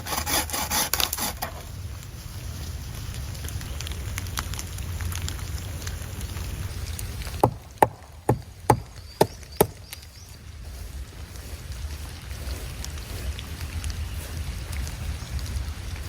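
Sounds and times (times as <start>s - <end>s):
sharp knocks: 7.4s - 9.8s.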